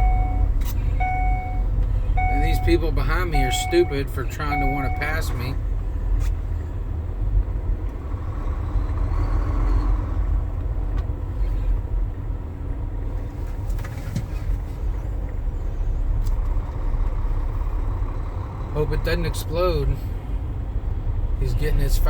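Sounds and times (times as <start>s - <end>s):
car engine rumble: 0.0s - 22.0s
road noise: 0.0s - 22.0s.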